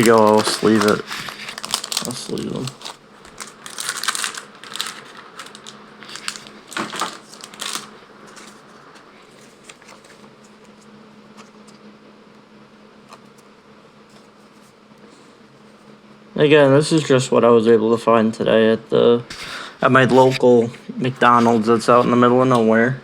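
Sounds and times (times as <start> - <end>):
cards and plastic sleeves rustling: 0.0 - 11.8, 19.3 - 20.4, 21.2 - 22.6
low steady hum: 0.0 - 23.0.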